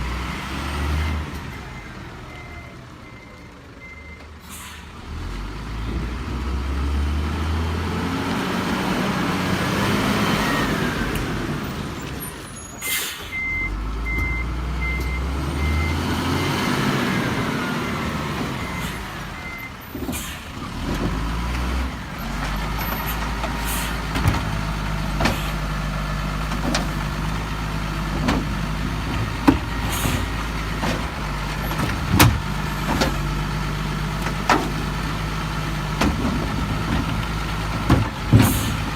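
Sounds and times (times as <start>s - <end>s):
garbage truck diesel engine: 0.0s - 38.9s
reversing beeper: 13.3s - 16.2s.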